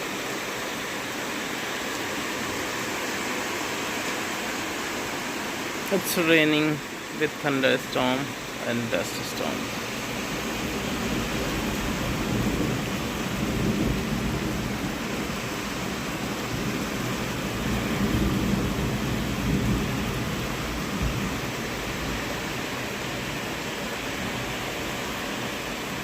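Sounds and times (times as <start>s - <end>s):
steady rain: 0.0s - 26.0s
thunder rumbling: 8.9s - 22.7s.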